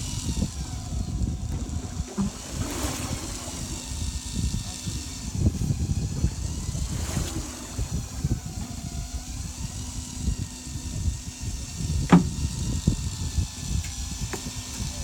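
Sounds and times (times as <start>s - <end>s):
boat engine idling: 0.0s - 15.0s
sharp knock: 12.1s - 12.4s.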